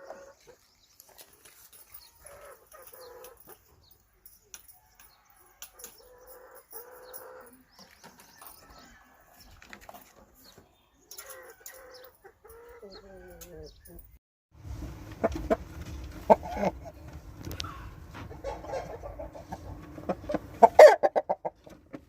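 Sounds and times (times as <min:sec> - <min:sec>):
light clicks and rustles: 0:00.6 - 0:06.1
chickens clucking faintly: 0:14.9 - 0:22.0.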